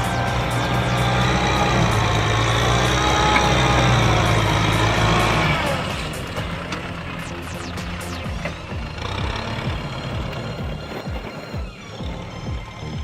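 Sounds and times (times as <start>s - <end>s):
heavy machine engine running: 0.0s - 13.0s.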